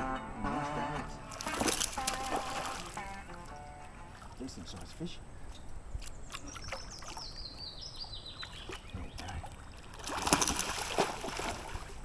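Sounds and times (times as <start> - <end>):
fish splashing water: 1.3 - 4.4, 8.3 - 12.0.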